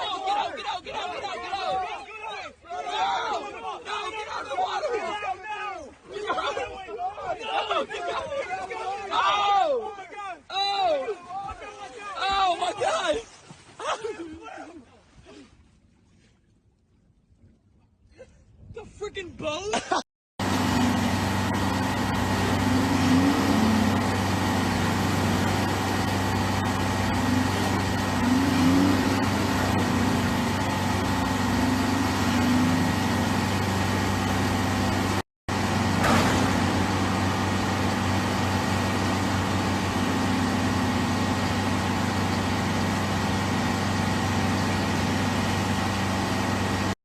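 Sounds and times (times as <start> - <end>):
boat engine humming: 20.4 - 47.0.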